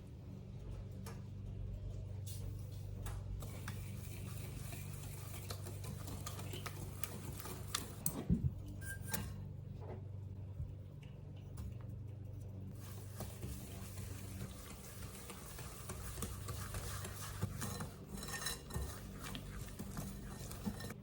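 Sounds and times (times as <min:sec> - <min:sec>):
utensils and dishes clicking: 0:03.4 - 0:08.2, 0:13.5 - 0:21.0.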